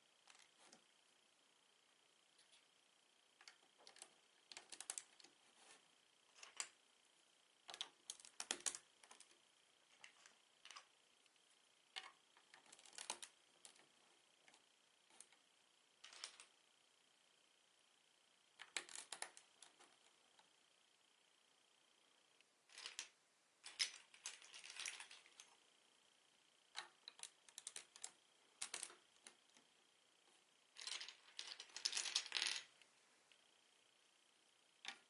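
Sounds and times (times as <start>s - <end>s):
plastic bricks clicking together: 26.8s - 29.0s, 30.8s - 32.7s.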